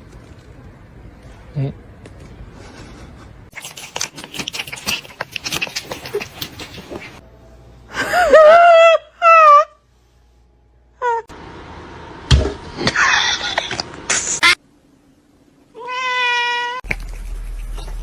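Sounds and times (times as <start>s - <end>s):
cat meowing loudly: 15.8s - 16.8s.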